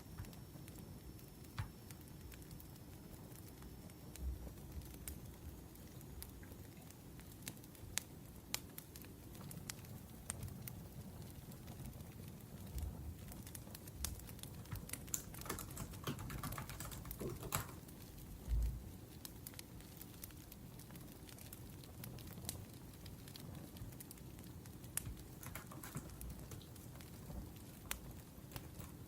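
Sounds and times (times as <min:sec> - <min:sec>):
wood fire crackling: 0:00.0 - 0:29.0
laptop keyboard typing: 0:14.6 - 0:17.8, 0:25.0 - 0:26.6.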